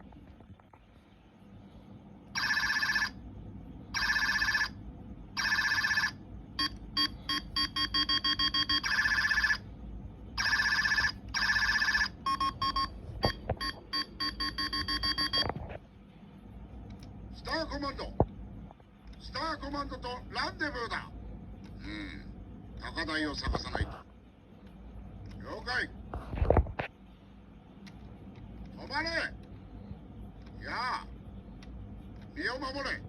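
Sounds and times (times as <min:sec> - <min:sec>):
toy electronic beeping: 0:05.4 - 0:09.6, 0:10.4 - 0:15.5.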